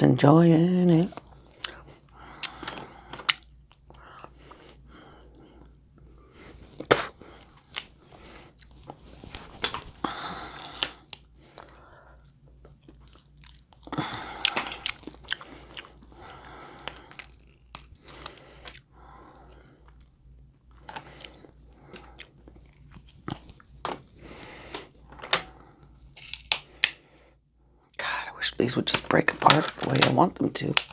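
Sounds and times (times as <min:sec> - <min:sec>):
faint low hum: 0:00.0 - 0:30.9
wet chewing and biting: 0:00.9 - 0:04.8, 0:10.6 - 0:18.9, 0:20.8 - 0:24.1
crab shells cracking: 0:12.7 - 0:18.8, 0:26.2 - 0:27.0, 0:28.9 - 0:30.9.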